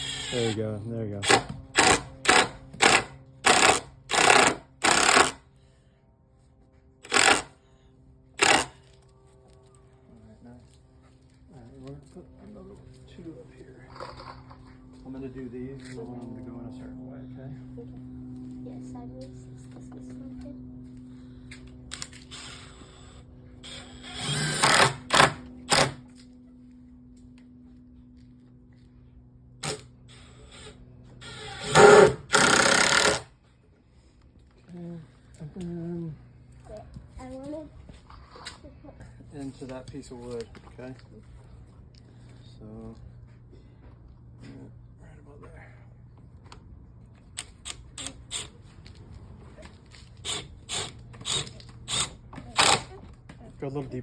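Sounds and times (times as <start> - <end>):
power drill driving screw into wood: 0.0 - 0.6, 1.2 - 5.4, 7.0 - 7.5, 8.4 - 8.8, 21.9 - 26.0, 29.6 - 33.3, 47.4 - 48.5, 50.2 - 53.0.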